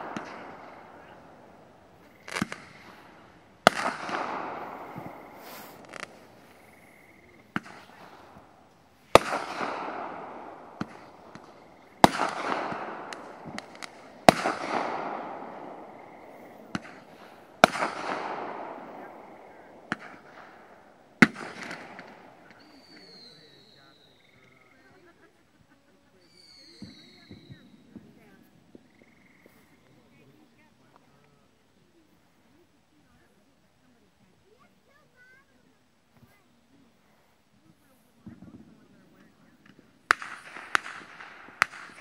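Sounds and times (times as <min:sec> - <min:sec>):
small firework pops: 0:00.0 - 0:25.1, 0:26.2 - 0:30.2, 0:37.8 - 0:42.0
fireworks bangs: 0:00.0 - 0:31.2, 0:37.6 - 0:42.0.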